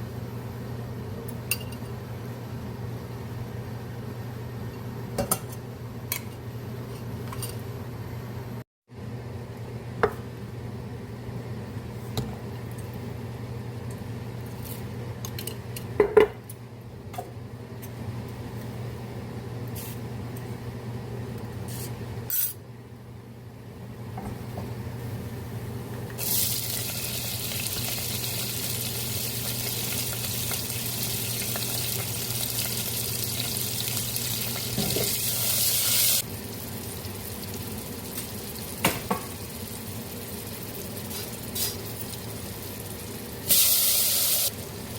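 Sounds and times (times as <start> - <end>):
kitchen tap running: 26.2 - 42.9.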